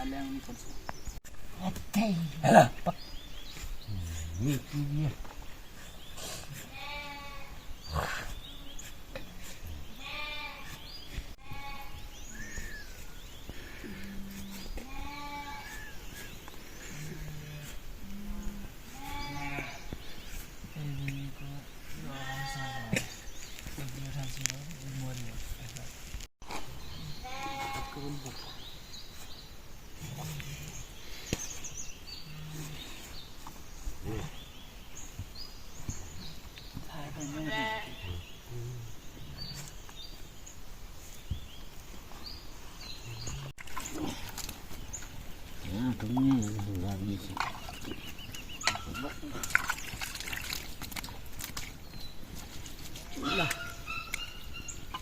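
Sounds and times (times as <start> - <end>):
outdoor background noise: 0.0 - 55.0
small birds chirping: 0.0 - 55.0
sheep bleating: 6.7 - 7.6, 10.0 - 10.8, 14.8 - 15.8, 37.3 - 38.1.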